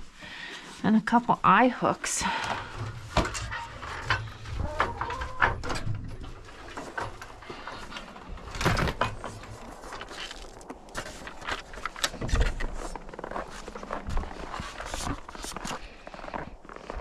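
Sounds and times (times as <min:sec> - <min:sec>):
rustling: 0:08.4 - 0:09.4
objects knocking and clunking: 0:08.5 - 0:09.2.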